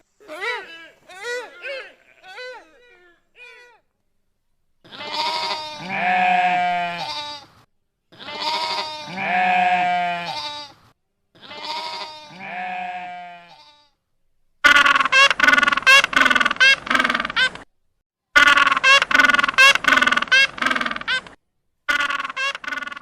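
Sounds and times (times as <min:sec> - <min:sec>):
farm animal bleating: 0:00.3 - 0:03.8, 0:04.8 - 0:07.5, 0:08.1 - 0:10.8, 0:11.4 - 0:14.0.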